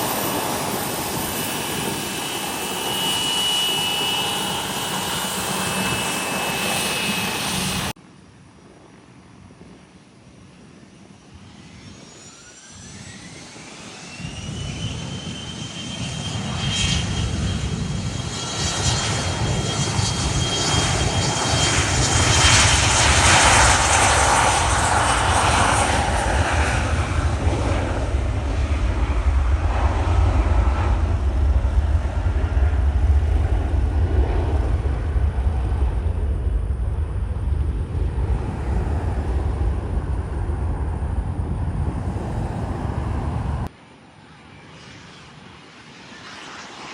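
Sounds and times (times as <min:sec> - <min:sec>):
jet engines whining: 0:00.0 - 0:08.0, 0:10.9 - 0:46.9
deep rumble: 0:17.0 - 0:43.7.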